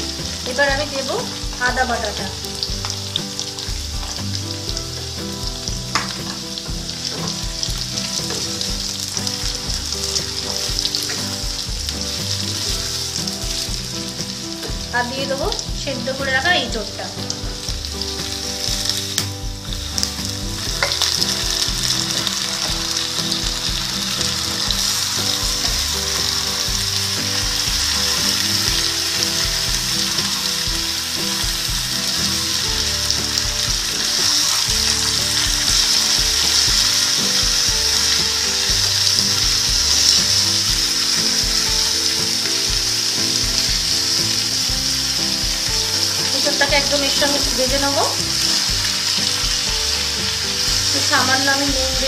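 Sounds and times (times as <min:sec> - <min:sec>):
vegetables sizzling in oil: 0:00.0 - 0:52.0
spatula stirring in wok: 0:17.3 - 0:52.0.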